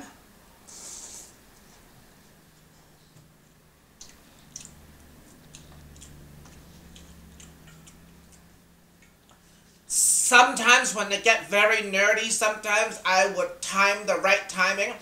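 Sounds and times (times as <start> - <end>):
low steady hum: 0.0 - 15.0
faint chewing of noodles: 0.7 - 9.9.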